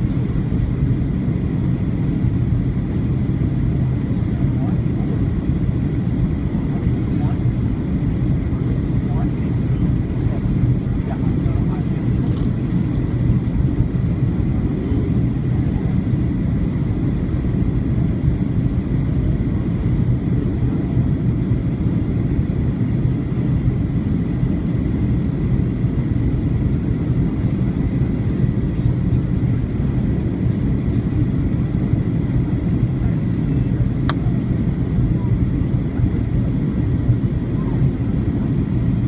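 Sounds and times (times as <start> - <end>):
faint high jet whine: 0.0 - 39.0
jet engines low rumble: 0.0 - 39.0.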